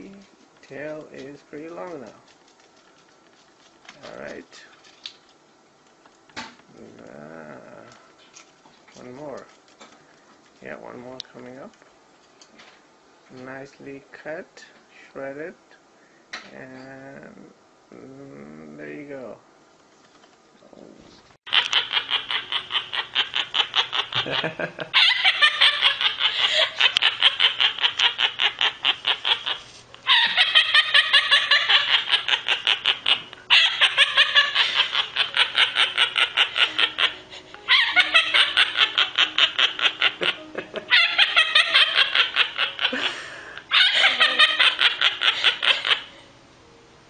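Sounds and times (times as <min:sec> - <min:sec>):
rapid rhythmic laughing: 0:21.5 - 0:46.2.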